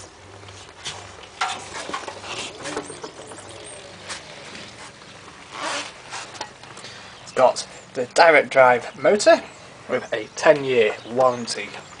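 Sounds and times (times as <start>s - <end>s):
handling clicks and rustles: 0.4s - 6.9s.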